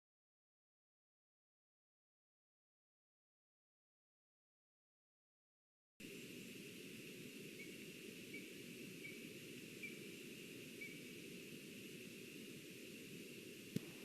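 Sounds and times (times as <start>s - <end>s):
forest ambience rumble and hiss: 6.0s - 14.0s
distant bird call: 6.4s - 14.0s.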